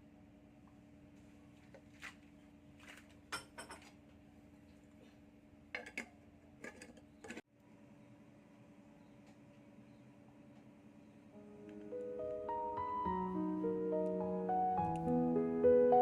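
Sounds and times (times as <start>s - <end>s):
kitchen equipment clinking: 5.8s - 7.4s.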